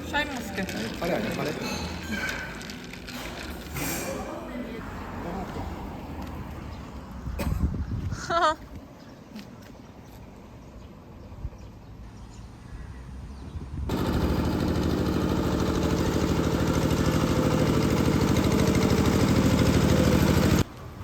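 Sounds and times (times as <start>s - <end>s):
motor engine running: 13.9s - 20.7s.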